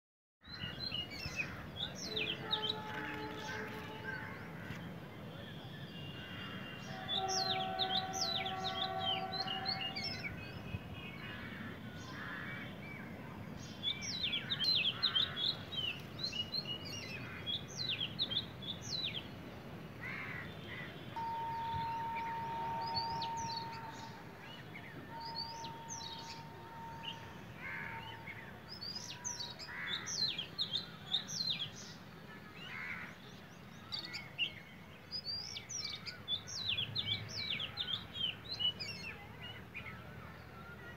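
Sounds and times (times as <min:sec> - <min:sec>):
long steady tones: 0:05.0 - 0:11.0, 0:21.1 - 0:28.6
small birds chirping: 0:20.4 - 0:32.8.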